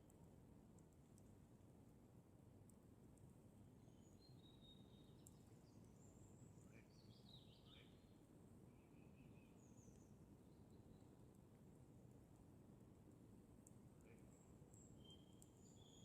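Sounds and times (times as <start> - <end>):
campfire crackle: 0.0 - 3.8, 10.0 - 15.8
low background hiss: 0.0 - 16.0
faint birdsong: 3.8 - 11.3, 14.0 - 16.0.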